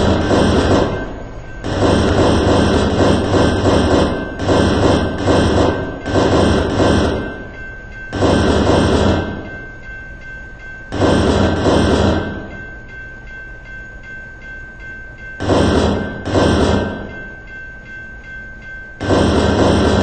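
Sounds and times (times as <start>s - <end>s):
thin high whine: 0.0s - 6.2s
train wheels clattering over rail: 0.0s - 9.8s
steady train rumble: 0.0s - 20.0s.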